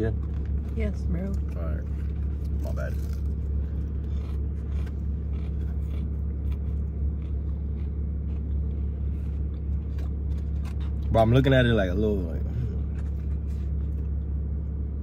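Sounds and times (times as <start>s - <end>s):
car engine idling: 0.0s - 15.0s
light scraping and rustling: 12.4s - 14.2s.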